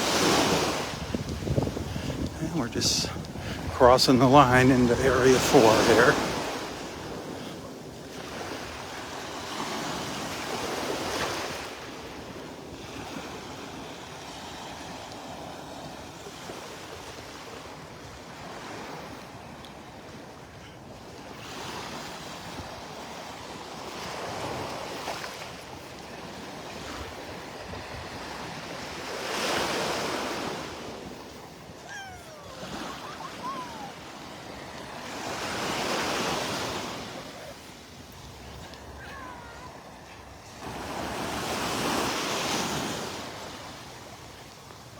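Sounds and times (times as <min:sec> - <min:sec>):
steady wash of water: 0:00.0 - 0:06.9, 0:23.8 - 0:43.8
small waves breaking: 0:00.0 - 0:44.9.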